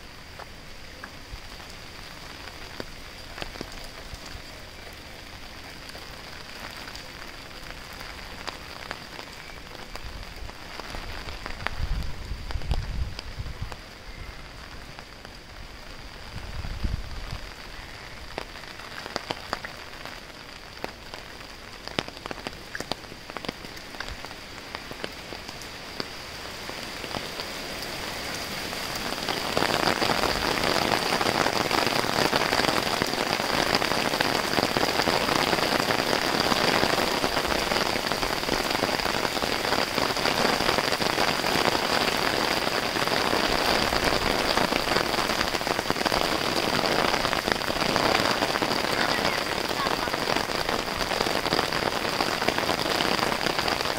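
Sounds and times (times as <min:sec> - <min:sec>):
rain falling on wet street: 0:00.0 - 0:53.9.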